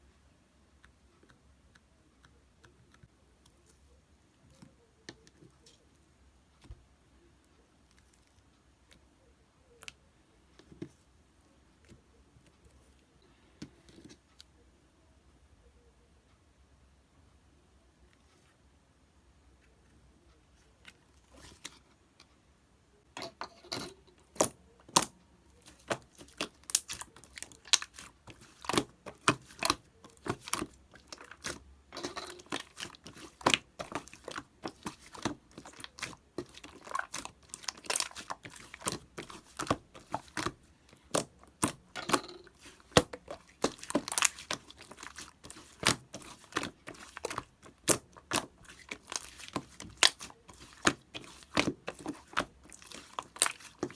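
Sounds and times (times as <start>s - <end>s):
slime squished by hand: 23.9s - 53.9s.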